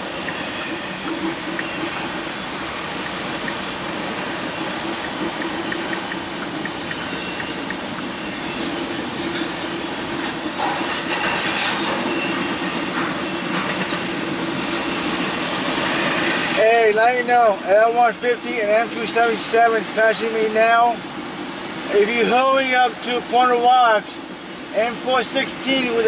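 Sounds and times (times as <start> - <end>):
train wheels rolling on rail: 0.0 - 20.0.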